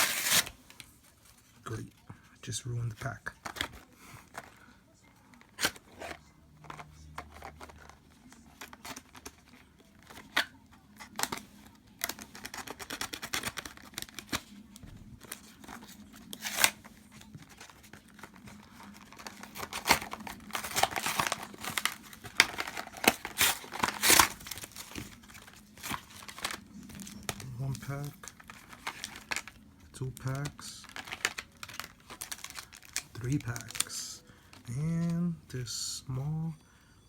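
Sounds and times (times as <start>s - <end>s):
packaging torn and crinkled: 0.0s - 0.6s, 7.3s - 14.5s, 15.2s - 35.7s.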